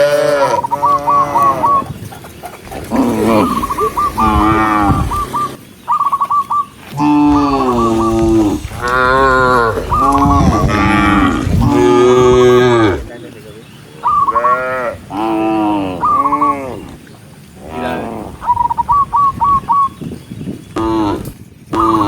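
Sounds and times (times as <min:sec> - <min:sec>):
cows mooing: 0:00.0 - 0:01.8, 0:02.6 - 0:05.6, 0:06.9 - 0:13.1.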